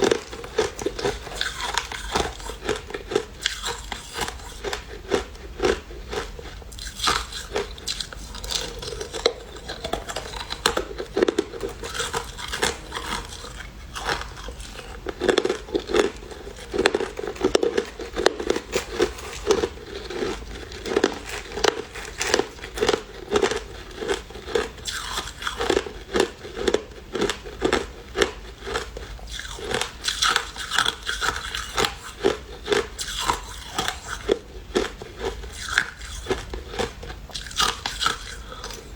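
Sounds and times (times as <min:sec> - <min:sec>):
person chewing crushed ice: 0:00.0 - 0:38.9.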